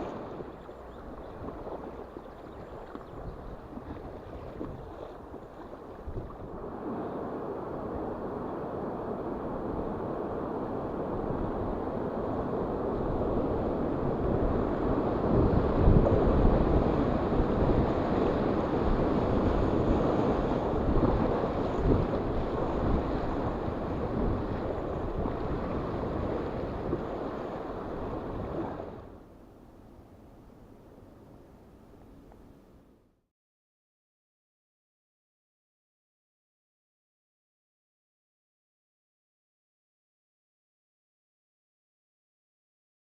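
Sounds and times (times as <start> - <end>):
wind buffeting microphone: 0.0 - 29.2.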